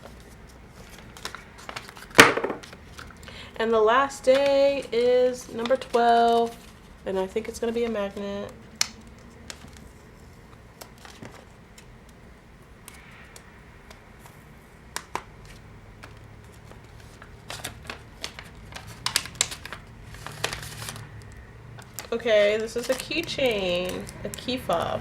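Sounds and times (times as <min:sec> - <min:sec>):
gift wrapping crinkling and tearing: 0:05.4 - 0:11.9, 0:14.9 - 0:25.0.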